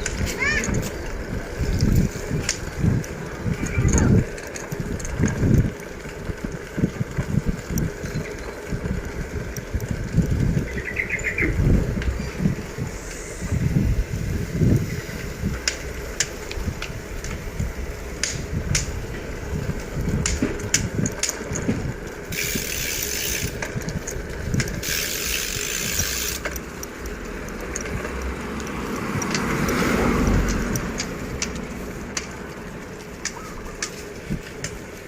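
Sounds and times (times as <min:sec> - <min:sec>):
bicycle rattling clicks: 0:00.0 - 0:35.0
road and wind rumble: 0:00.0 - 0:35.0
vehicle passing: 0:24.8 - 0:33.2.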